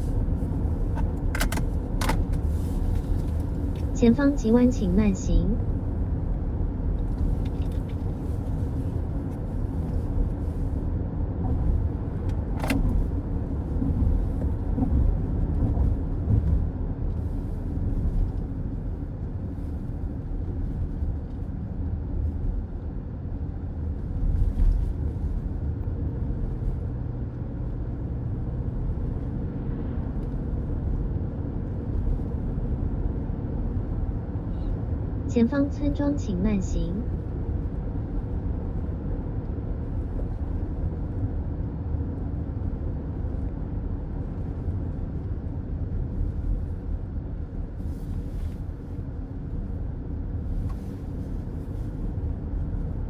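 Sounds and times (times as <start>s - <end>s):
road and tyre rumble: 0.0s - 53.0s.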